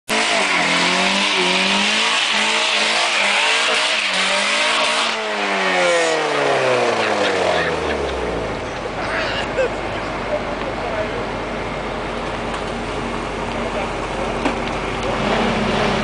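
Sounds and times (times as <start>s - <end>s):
car engine revving hard: 0.1s - 8.7s, 14.9s - 16.0s.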